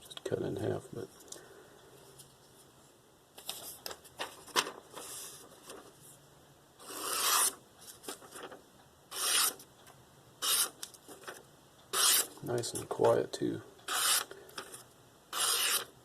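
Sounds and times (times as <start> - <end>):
blade slicing through paper: 6.8 - 7.6, 9.1 - 9.6, 10.4 - 10.8, 12.0 - 12.4, 13.9 - 15.9.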